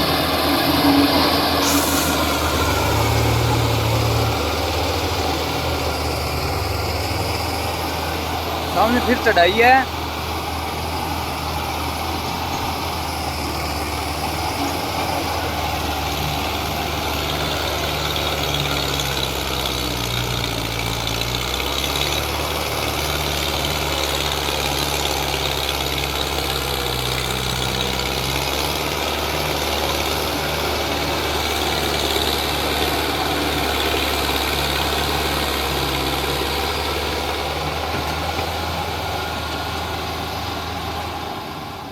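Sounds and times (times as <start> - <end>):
tractor diesel engine under load: 0.0 - 41.9.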